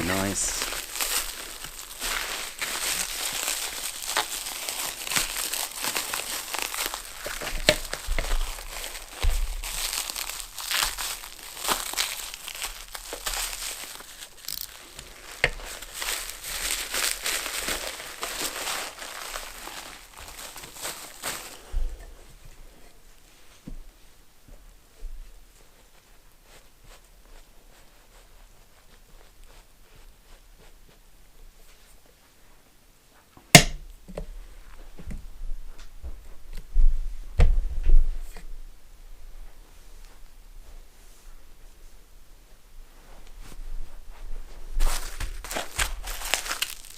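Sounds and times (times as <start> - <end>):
packaging crinkling and rustling: 0.0 - 23.6, 44.5 - 46.9
handling noises: 0.0 - 23.9, 43.2 - 46.9
sharp knock: 33.6 - 33.8.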